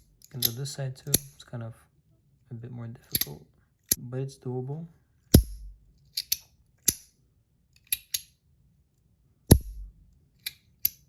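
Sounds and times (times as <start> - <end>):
low thud: 9.5 - 9.9.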